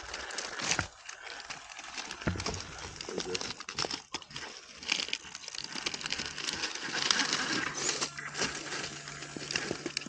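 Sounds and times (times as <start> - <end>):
tyres crackling on rocks: 0.0 - 10.0
small electric motor whirring: 6.6 - 10.0.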